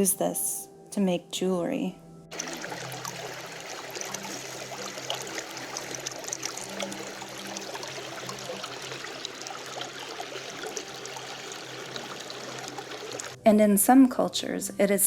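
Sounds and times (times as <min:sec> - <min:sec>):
creek water over rocks: 0:02.3 - 0:13.4.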